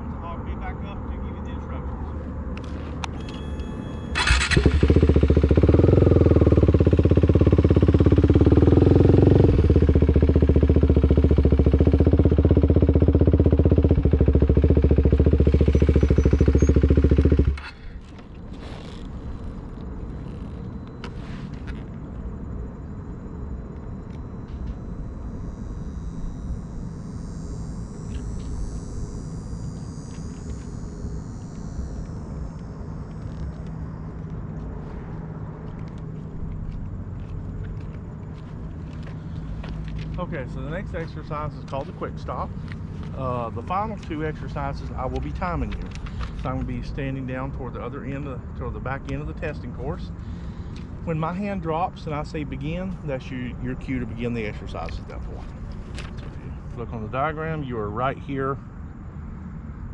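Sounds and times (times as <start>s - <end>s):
low outdoor background: 0.0s - 59.9s
motorcycle engine running: 3.2s - 21.7s, 23.1s - 46.8s.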